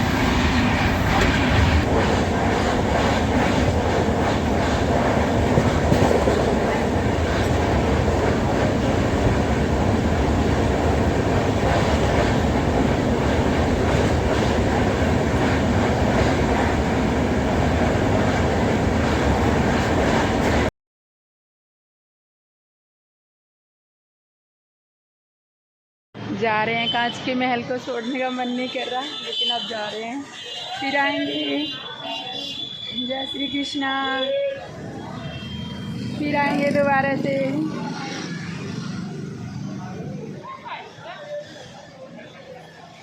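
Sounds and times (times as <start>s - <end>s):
train wheels rumbling on track: 0.0s - 20.7s.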